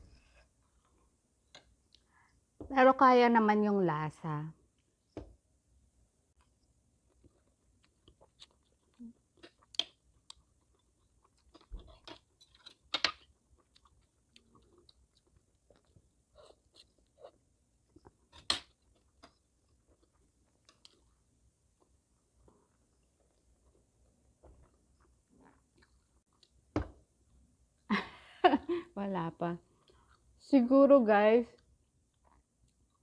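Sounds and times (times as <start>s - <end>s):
close-up chewing: 6.4s - 21.2s.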